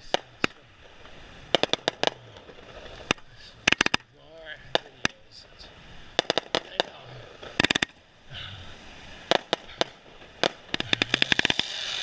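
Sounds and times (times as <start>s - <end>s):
fireworks bangs: 0.0s - 4.0s, 4.6s - 5.4s, 6.1s - 8.1s, 9.2s - 12.0s
rattling fireworks cracks: 0.0s - 8.1s, 9.3s - 12.0s.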